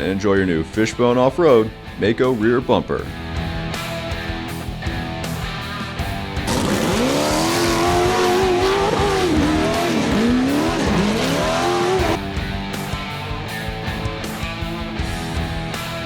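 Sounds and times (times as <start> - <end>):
guitar background music: 0.0 - 16.0
vehicle engine revving: 6.4 - 12.2.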